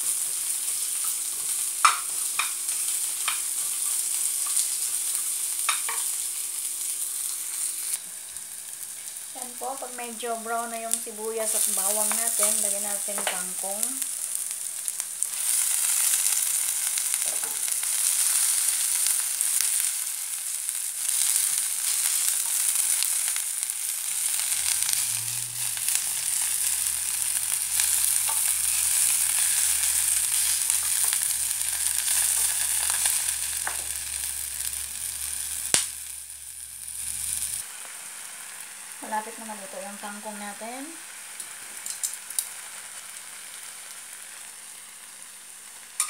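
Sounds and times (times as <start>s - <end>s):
vegetables sizzling in a pan: 0.0s - 46.0s.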